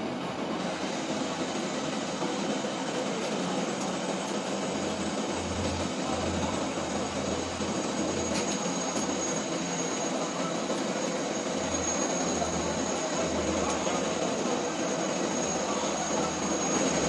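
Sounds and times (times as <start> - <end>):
lathe machine noise: 4.3 - 17.0.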